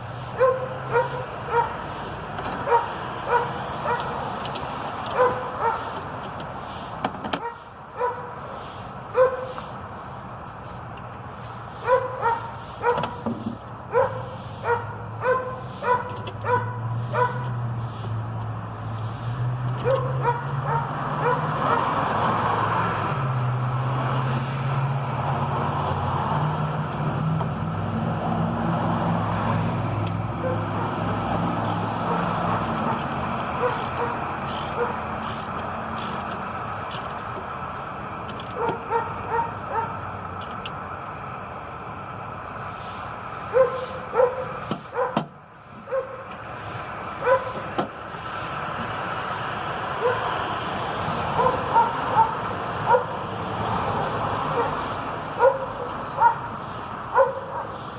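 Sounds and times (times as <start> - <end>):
dog barking: 0.4 - 1.8, 2.6 - 4.1, 5.1 - 5.9, 7.4 - 8.3, 9.1 - 9.5, 11.8 - 13.2, 13.9 - 17.4, 19.8 - 21.8, 30.4 - 31.0, 32.0 - 33.0, 33.6 - 34.2, 34.8 - 35.0, 38.6 - 40.0, 43.5 - 45.2, 45.9 - 46.2, 47.2 - 47.6, 50.0 - 50.3, 51.4 - 53.2, 54.5 - 54.8, 55.4 - 56.5, 57.1 - 57.8.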